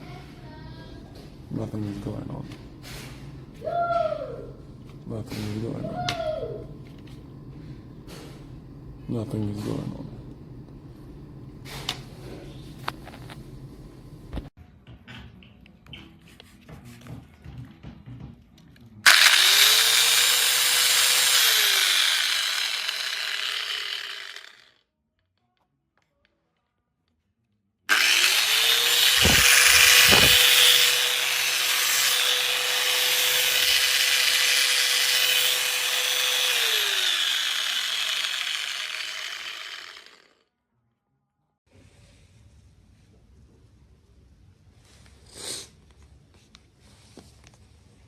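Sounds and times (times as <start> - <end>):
power tool motor whine: 19.1 - 24.7, 27.9 - 40.4.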